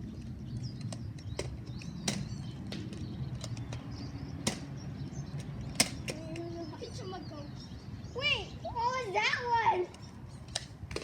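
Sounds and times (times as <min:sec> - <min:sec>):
sharp clicks and knocks: 0:00.8 - 0:04.7, 0:05.4 - 0:06.5.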